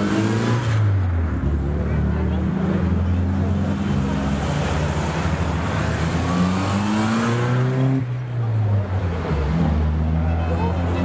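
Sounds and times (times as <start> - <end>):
car engines running: 0.0 - 11.0
car engine revving: 2.1 - 8.1.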